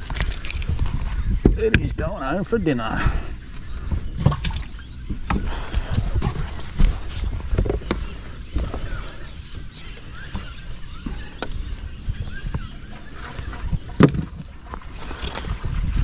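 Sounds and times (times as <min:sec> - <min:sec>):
knocks aboard a small boat: 0:03.8 - 0:09.0, 0:12.5 - 0:14.8
faint bird chirps: 0:07.7 - 0:15.6.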